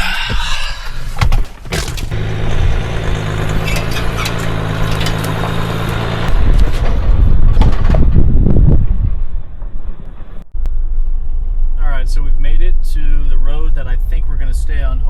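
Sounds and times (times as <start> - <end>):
car engine running: 0.0 - 7.0
sharp knocks: 1.2 - 2.2.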